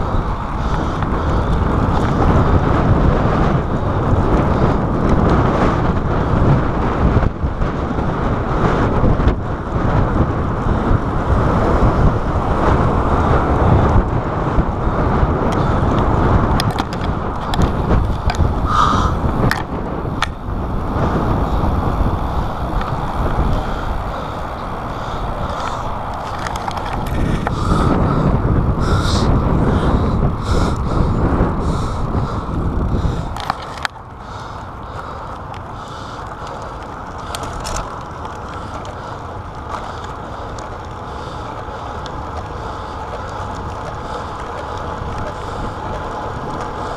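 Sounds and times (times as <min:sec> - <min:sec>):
wind buffeting microphone: 0:00.0 - 0:46.9
faint clicks: 0:33.0 - 0:46.9.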